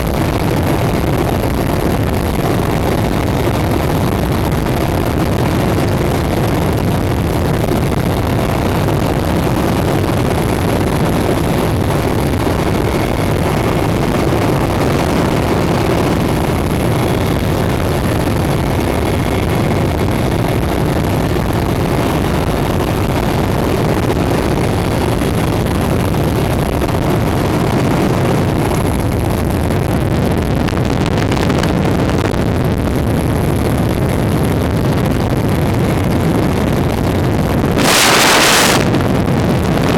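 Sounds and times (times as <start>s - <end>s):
helicopter engines and rotor drone: 0.0s - 39.9s
faint high whine: 35.0s - 39.9s.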